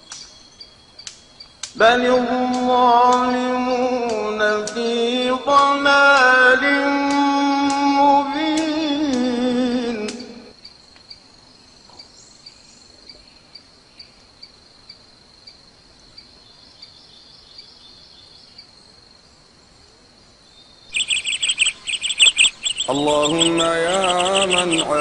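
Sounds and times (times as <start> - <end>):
loud rapid bird chirping: 20.8 - 25.0.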